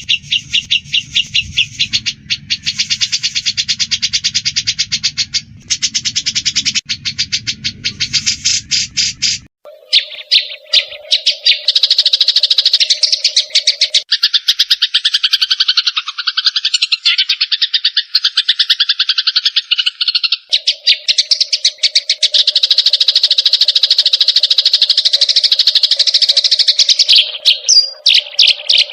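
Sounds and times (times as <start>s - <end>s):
steady low hum: 0.0s - 9.5s
birds chattering agitatedly: 0.0s - 28.9s.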